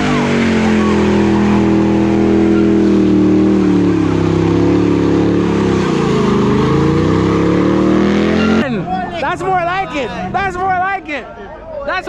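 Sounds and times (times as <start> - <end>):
spinning tyres hissing: 0.0 - 8.7
car engine high revs: 0.0 - 10.7.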